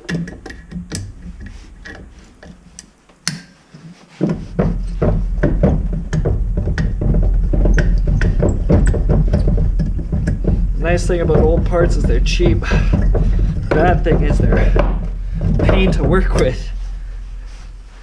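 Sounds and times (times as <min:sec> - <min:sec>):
metal clicks and knocks: 0:00.0 - 0:03.6, 0:04.3 - 0:16.8
low hum with fast ticking: 0:04.8 - 0:17.5.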